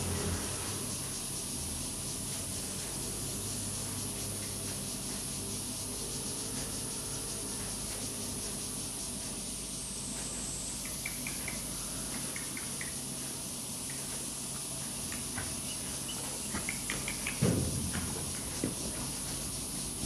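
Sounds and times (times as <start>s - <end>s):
low background hum: 0.0s - 20.0s
high-pitched insect buzzing: 5.1s - 9.2s.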